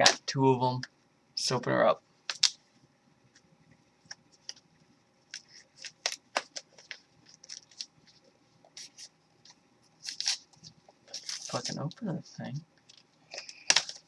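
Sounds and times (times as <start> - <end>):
foil wrapper crinkling: 5.3 - 8.0, 10.0 - 11.9.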